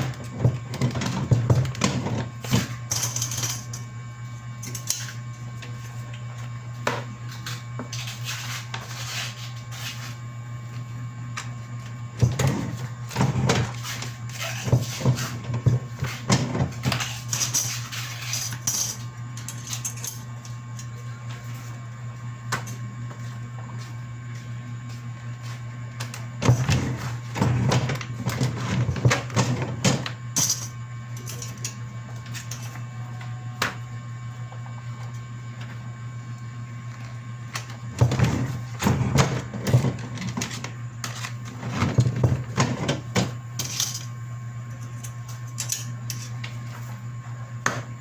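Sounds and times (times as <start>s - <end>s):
low machine hum: 0.0s - 48.0s.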